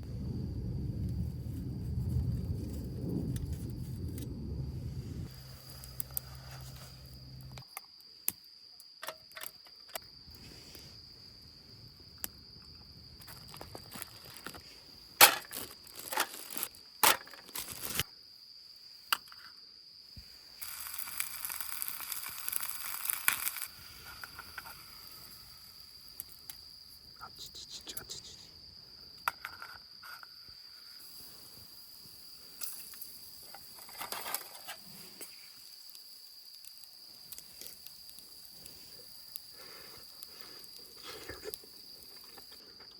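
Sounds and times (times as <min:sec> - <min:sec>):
hissing rustle: 0:01.1 - 0:07.6, 0:10.4 - 0:11.0, 0:20.2 - 0:26.4, 0:30.8 - 0:36.1, 0:36.7 - 0:42.8
insect trilling: 0:02.4 - 0:08.0, 0:20.5 - 0:29.2.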